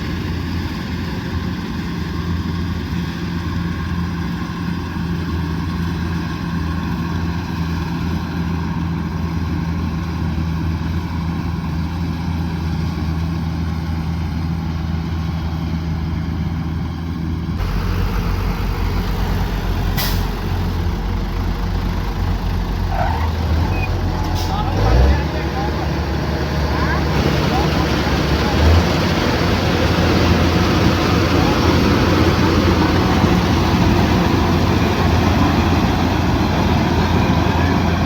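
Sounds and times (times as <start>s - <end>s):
diesel engine running under load: 0.0s - 38.0s.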